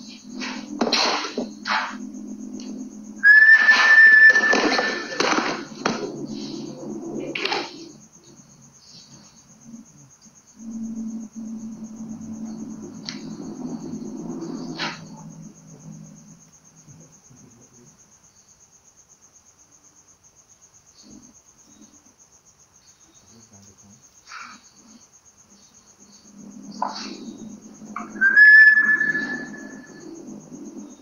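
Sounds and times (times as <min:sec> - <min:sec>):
crickets chirping: 0:00.0 - 0:31.0
whistle-like tone: 0:03.2 - 0:05.8, 0:28.0 - 0:30.1.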